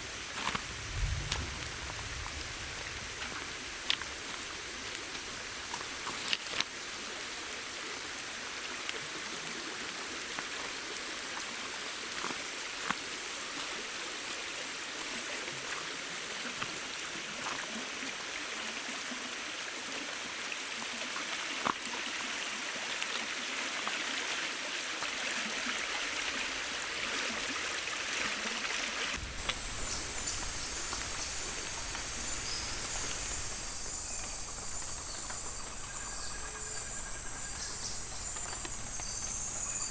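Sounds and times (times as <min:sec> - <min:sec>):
water drips: 0:00.0 - 0:13.8, 0:29.1 - 0:39.9
hiss of running water: 0:00.0 - 0:39.9
high insect trill: 0:29.2 - 0:39.9.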